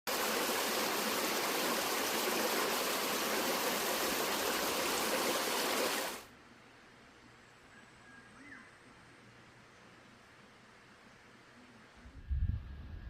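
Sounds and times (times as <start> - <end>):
stream rushing over rocks: 0.1 - 6.3.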